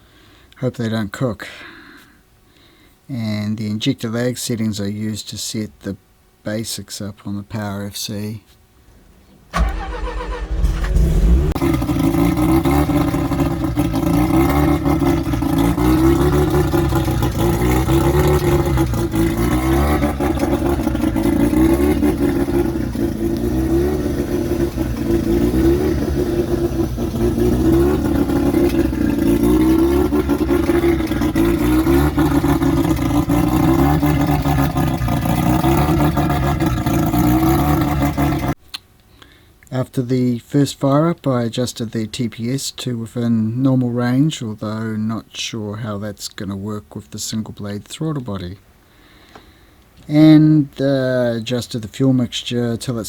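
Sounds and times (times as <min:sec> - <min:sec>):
rotary engine idling unevenly: 0:09.5 - 0:38.6.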